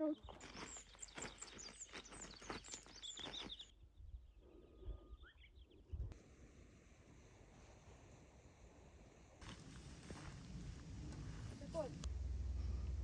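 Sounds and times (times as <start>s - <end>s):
small birds chirping: 0.0s - 6.1s.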